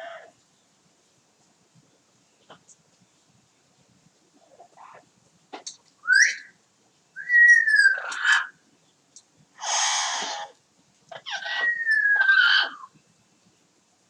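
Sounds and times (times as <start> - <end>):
parrot whistling: 6.0 - 6.5, 7.2 - 8.5, 11.3 - 12.8
parrot squawk: 7.2 - 8.6, 9.6 - 12.9.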